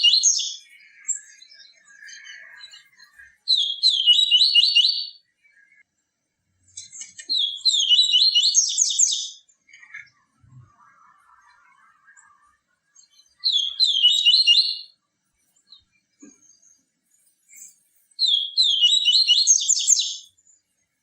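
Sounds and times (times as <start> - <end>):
faint lower bird chirps: 0.0 - 6.0, 6.6 - 21.0.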